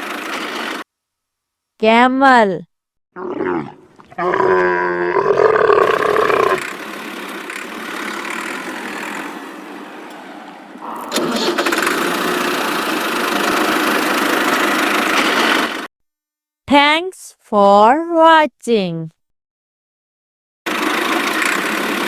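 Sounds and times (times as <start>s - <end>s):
camel calling: 3.2s - 6.6s.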